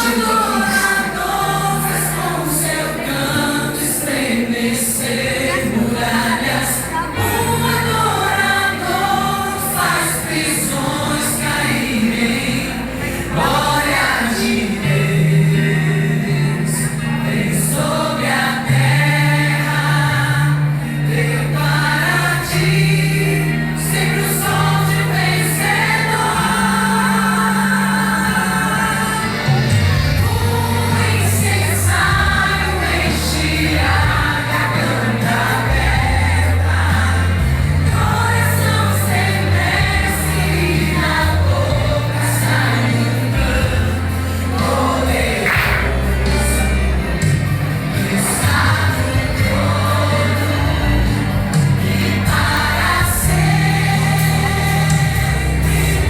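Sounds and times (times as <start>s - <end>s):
choir singing: 0.0s - 56.0s
instrumental backing: 0.0s - 56.0s
sustained bass notes: 0.0s - 56.0s.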